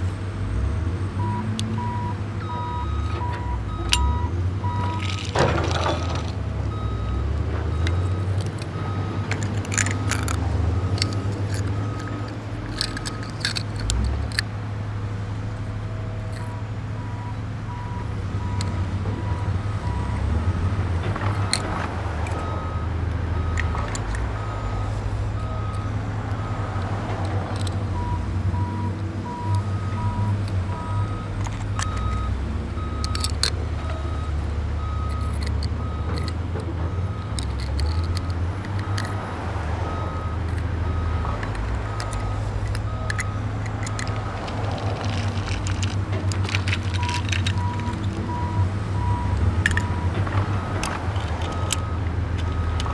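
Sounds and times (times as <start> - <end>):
truck engine rumbling: 0.0 - 52.9
reversing beeper: 1.2 - 12.3
sharp clicks: 7.7 - 14.6, 18.5 - 28.2, 29.4 - 52.9.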